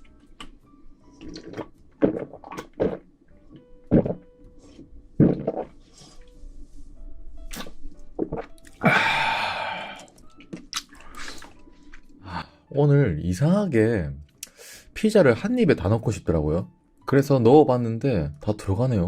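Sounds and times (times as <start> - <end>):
faint background music: 0.0 - 19.0
person gulping beer: 1.2 - 3.1, 3.9 - 4.3, 5.2 - 5.8, 7.5 - 11.6
breathy exhale: 8.8 - 10.1.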